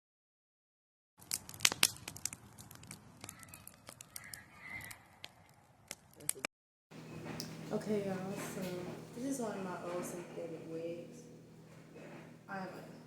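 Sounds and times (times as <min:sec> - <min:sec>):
sharp clicks: 0:01.2 - 0:05.0
crinkling and rustling: 0:01.2 - 0:06.4.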